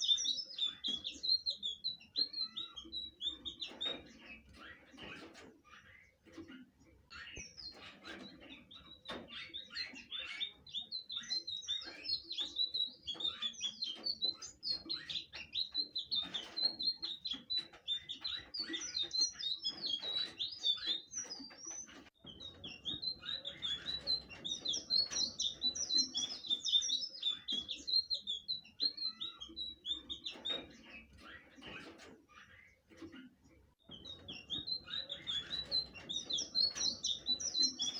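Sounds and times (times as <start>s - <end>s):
bird singing high chirping notes: 9.4s - 30.6s, 33.9s - 37.9s.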